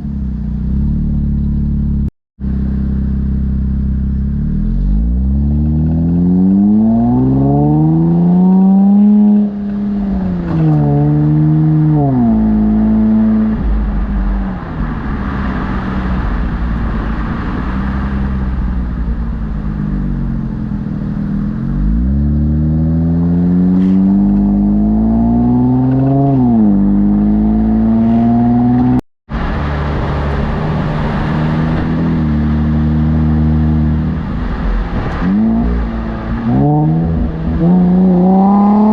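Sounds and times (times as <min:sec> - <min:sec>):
car engine accelerating hard: 0:00.0 - 0:38.9.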